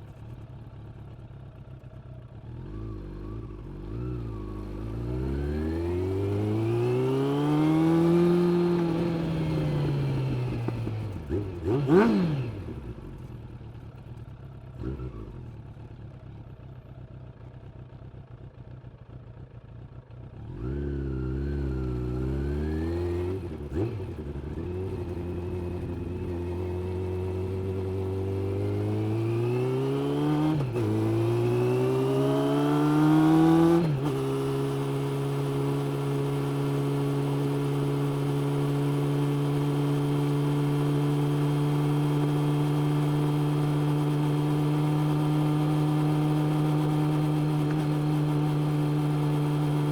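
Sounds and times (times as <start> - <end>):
motorcycle engine idling: 0.0 - 4.5, 12.6 - 20.6
motorcycle accelerating through gears: 0.0 - 49.9.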